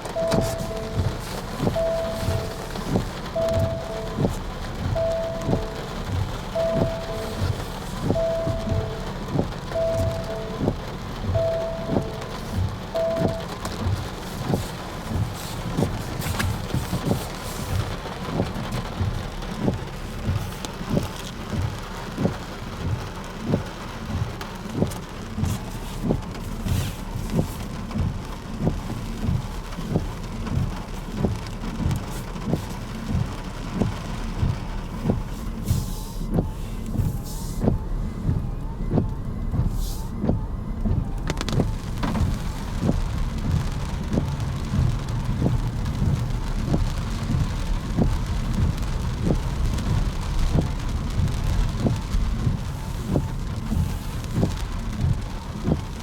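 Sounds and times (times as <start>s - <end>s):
steady rushing hiss: 0.0s - 21.1s
footsteps walking: 0.3s - 4.5s, 13.6s - 17.9s.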